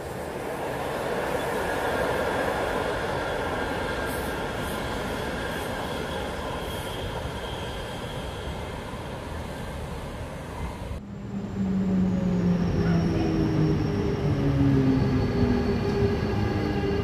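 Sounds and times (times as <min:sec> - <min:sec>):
train wheels rumbling on rail: 0:00.0 - 0:11.0
faint high wheel squeal: 0:04.0 - 0:09.1.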